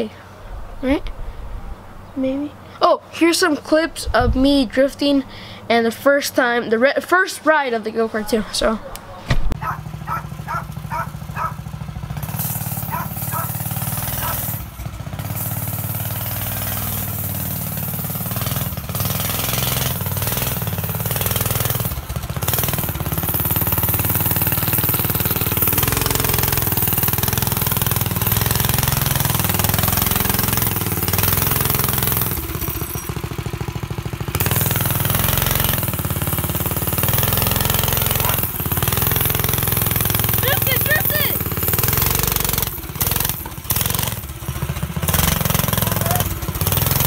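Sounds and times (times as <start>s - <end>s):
go-kart engine running loud: 9.6s - 47.0s.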